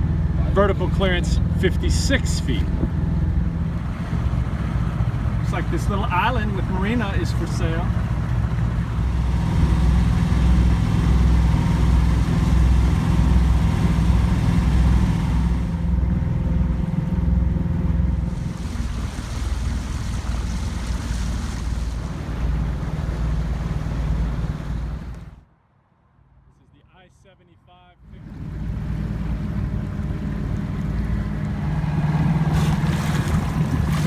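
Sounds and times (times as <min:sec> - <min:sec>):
boat engine throbbing: 0:00.0 - 0:25.4, 0:28.0 - 0:34.0
wind noise on microphone: 0:02.6 - 0:05.4.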